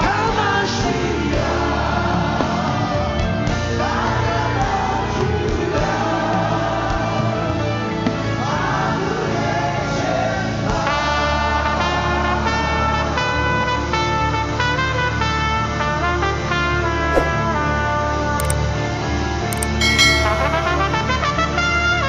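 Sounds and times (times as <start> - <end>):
gospel singers: 0.0 - 13.1
band playing worship music: 0.0 - 14.6.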